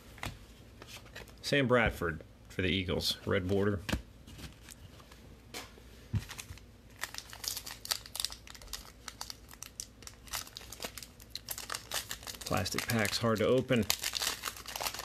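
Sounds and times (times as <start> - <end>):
plastic wrapper crinkling and tearing: 6.3 - 15.0.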